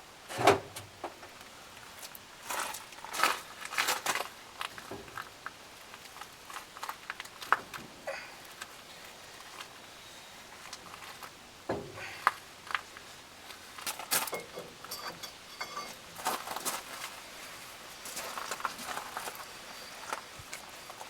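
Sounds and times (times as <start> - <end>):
metallic clinks of tools: 14.2 - 16.3.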